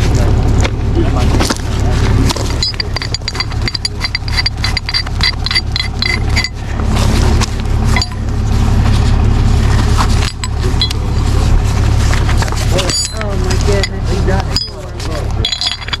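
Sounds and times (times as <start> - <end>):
truck engine rumbling: 0.0 - 16.0
high metallic clinks: 2.5 - 6.6, 8.0 - 8.3, 12.8 - 16.0.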